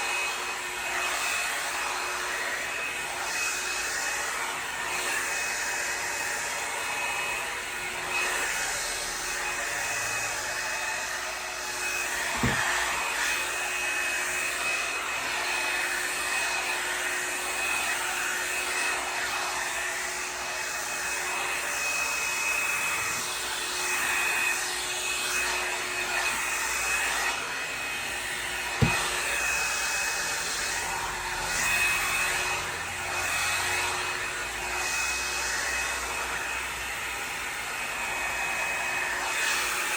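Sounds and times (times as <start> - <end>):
hot-air brush whining airflow: 0.0 - 39.9.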